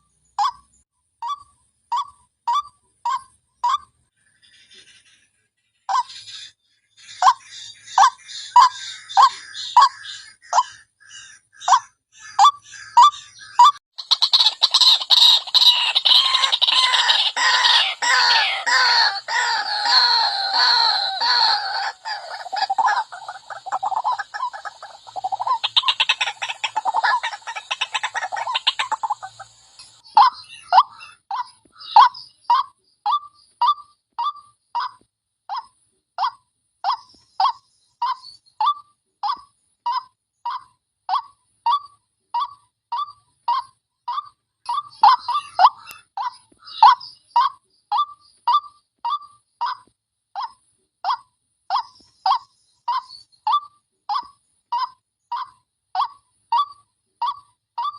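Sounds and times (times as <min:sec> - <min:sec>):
waterhen calls chorus: 0:12.4 - 0:32.7.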